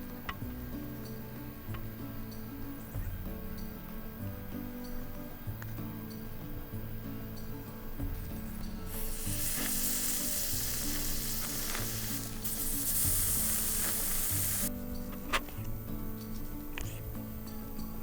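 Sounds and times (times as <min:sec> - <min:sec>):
background music: 0:00.0 - 0:18.0
food sizzling on a grill: 0:08.3 - 0:14.7.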